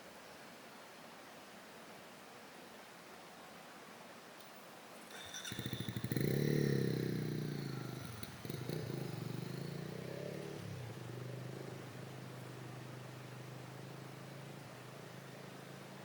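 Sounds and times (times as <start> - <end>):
small petrol engine starting: 5.1 - 15.5.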